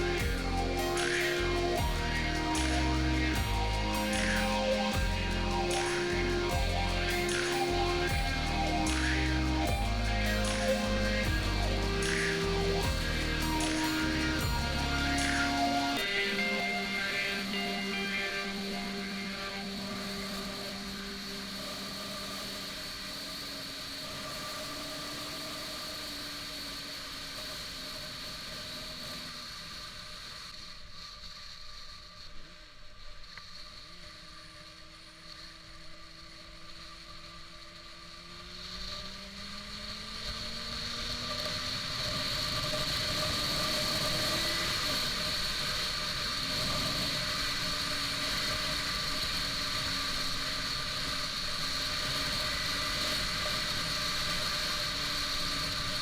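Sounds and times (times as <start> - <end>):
motorcycle engine accelerating: 36.7 - 46.6.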